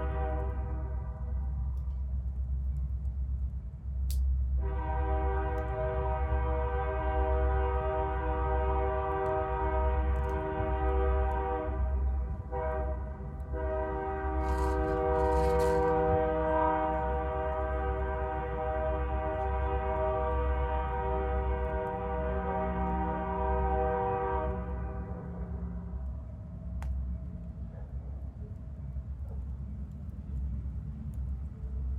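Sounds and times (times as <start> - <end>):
train horn blasts: 0.0 - 1.7, 4.6 - 26.3
train rumbling: 0.0 - 31.9.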